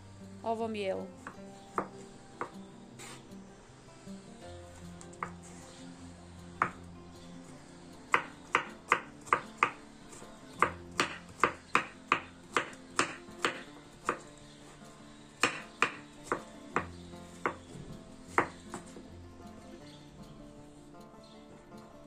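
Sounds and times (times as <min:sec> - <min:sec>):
soft background music: 0:00.0 - 0:22.0
knife chopping on wooden board: 0:01.2 - 0:02.6, 0:06.6 - 0:06.8, 0:08.1 - 0:09.8, 0:10.6 - 0:14.3, 0:15.4 - 0:17.6, 0:18.3 - 0:19.0.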